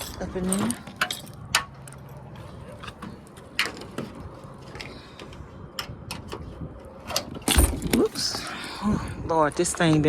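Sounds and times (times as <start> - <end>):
wind noise: 3.1 - 10.0.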